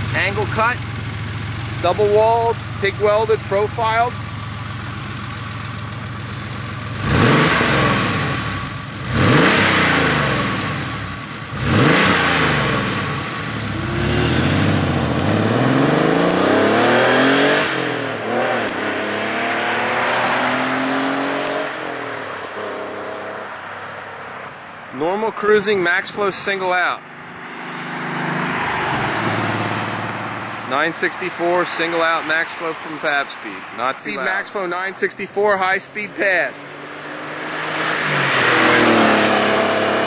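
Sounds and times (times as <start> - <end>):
car engine throttle blips: 0.0 - 23.2, 27.0 - 40.0
car accelerating away: 6.9 - 23.4, 27.4 - 30.8, 36.0 - 40.0.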